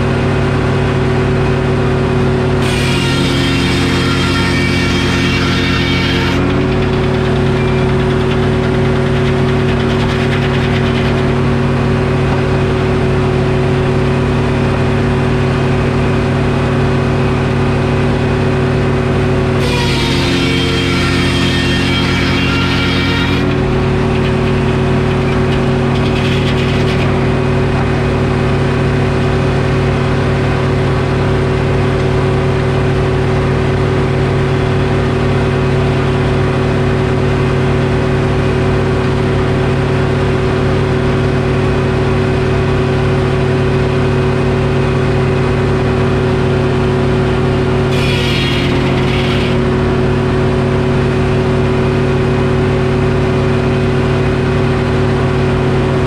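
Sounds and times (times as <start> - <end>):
diesel engine running: 0.0 - 56.0
saw blade whining through log: 2.2 - 14.0, 18.2 - 29.7, 46.4 - 52.2.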